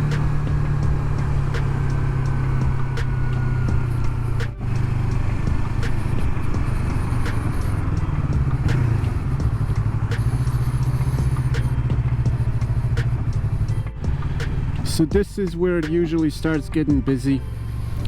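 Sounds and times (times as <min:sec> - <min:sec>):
motorcycle engine running steadily: 0:00.0 - 0:18.0.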